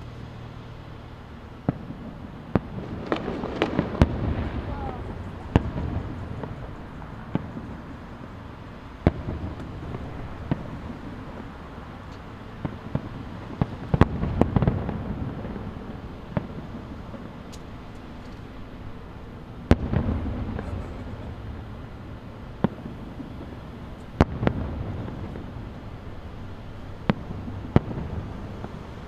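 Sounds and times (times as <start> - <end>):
distant fireworks bursting: 0.0 - 29.0
steady low rumble: 0.0 - 29.0.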